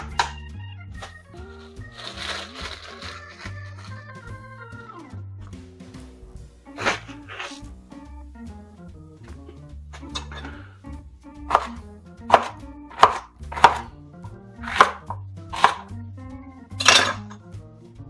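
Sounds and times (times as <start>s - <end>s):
background music: 0.0s - 18.0s
knife chopping on cutting board: 11.5s - 16.0s.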